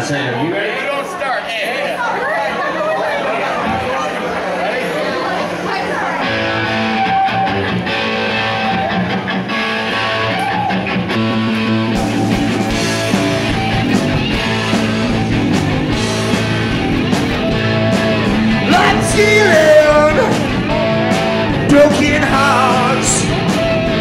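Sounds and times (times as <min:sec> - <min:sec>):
guitar: 0:05.2 - 0:24.0
live rock band playing: 0:06.2 - 0:24.0
bass and drums: 0:09.8 - 0:24.0.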